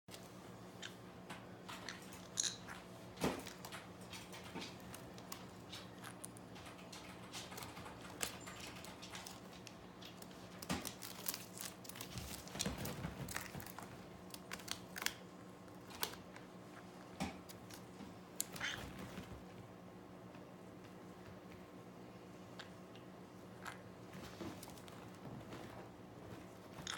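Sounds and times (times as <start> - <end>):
parrot nibbling chips: 1.7 - 19.1, 26.4 - 26.9.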